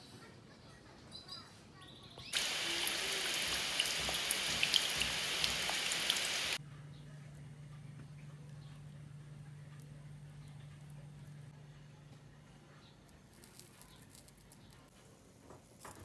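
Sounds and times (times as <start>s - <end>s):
rain falling into puddle: 2.4s - 6.6s.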